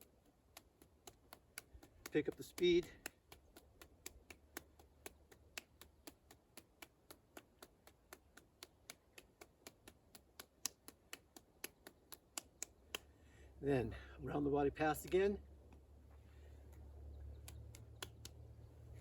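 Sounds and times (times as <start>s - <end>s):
ball slapped between hands: 0.5s - 13.1s, 17.4s - 18.5s.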